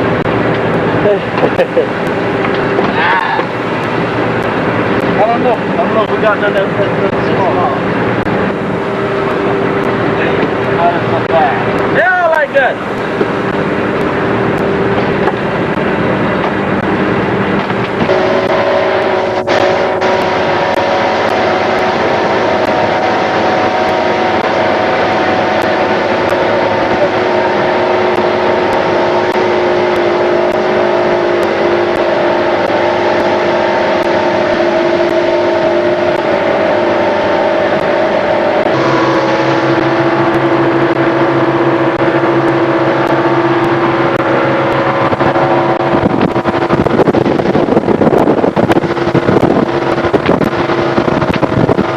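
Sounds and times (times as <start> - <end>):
boat engine running: 0.0 - 51.9
water rushing hiss: 0.9 - 5.1.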